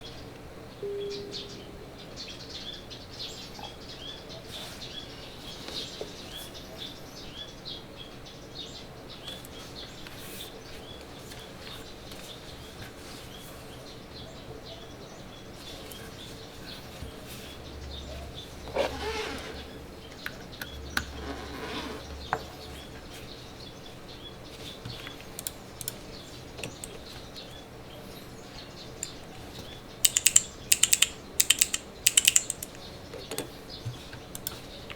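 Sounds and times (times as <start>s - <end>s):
small birds chirping: 0.0s - 34.9s
steady background hum: 0.0s - 34.9s.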